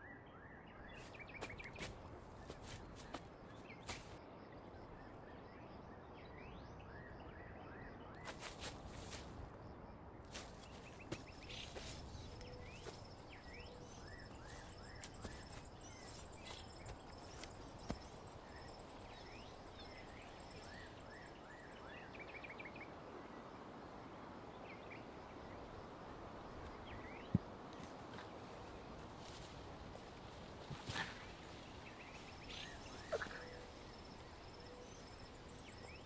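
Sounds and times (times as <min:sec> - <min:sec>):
small birds chirping: 0:00.7 - 0:04.2, 0:08.1 - 0:22.6, 0:26.6 - 0:36.0.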